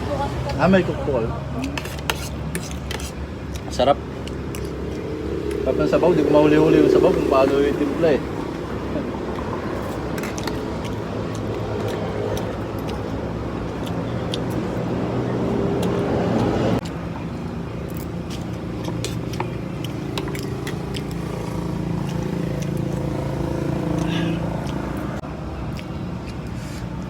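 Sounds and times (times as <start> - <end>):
vehicle engine running: 4.2 - 14.8.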